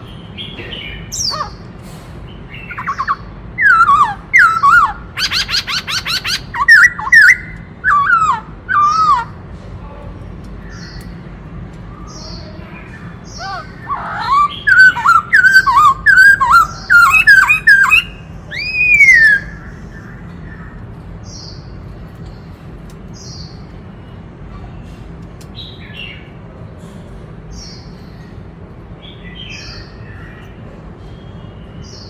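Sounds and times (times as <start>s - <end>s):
bird singing whistled notes: 2.5s - 9.3s, 13.4s - 20.1s.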